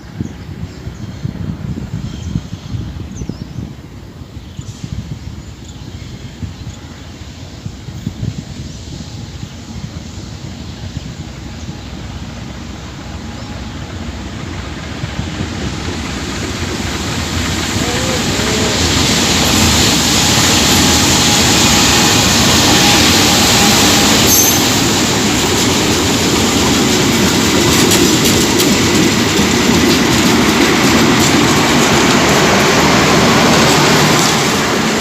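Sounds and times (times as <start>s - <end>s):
train wheels rumbling on rails: 0.0s - 35.0s
wheel squeal: 22.7s - 24.9s.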